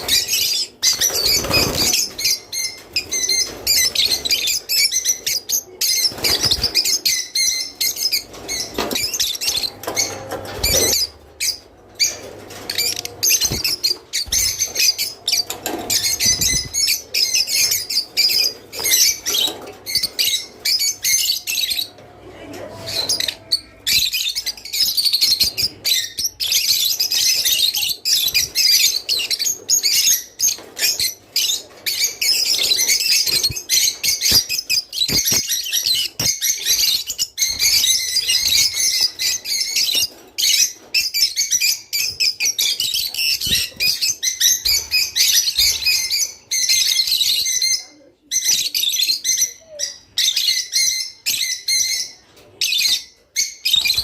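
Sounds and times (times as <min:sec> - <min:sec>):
flock of lovebirds chirping: 0:00.0 - 0:54.0.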